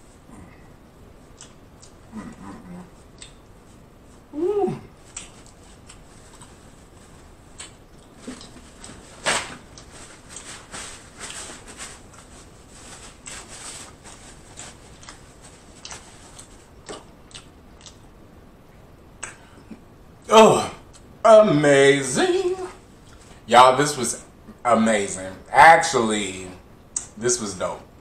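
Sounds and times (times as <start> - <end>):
wet chewing clicks and lip smacks: 1.3 - 2.0, 3.1 - 3.6, 5.1 - 6.5, 15.8 - 18.1.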